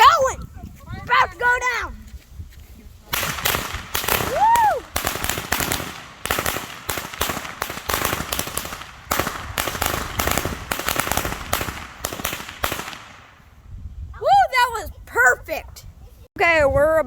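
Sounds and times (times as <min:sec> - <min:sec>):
firecrackers popping: 0:03.1 - 0:13.4.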